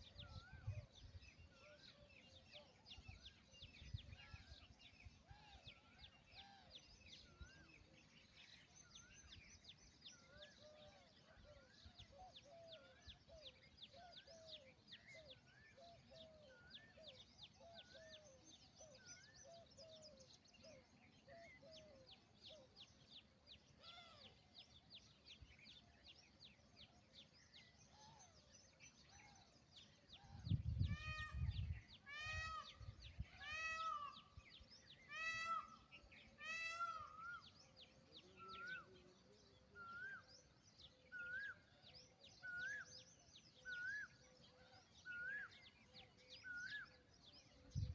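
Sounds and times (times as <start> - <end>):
small birds chirping: 0.0 - 47.9
peafowl calling: 33.4 - 34.2, 35.1 - 35.8, 36.4 - 37.4.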